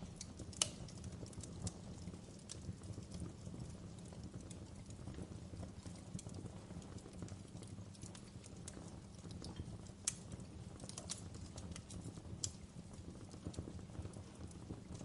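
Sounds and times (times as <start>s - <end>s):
low rumble of flames: 0.0s - 15.0s
wood fire crackling: 0.0s - 15.0s.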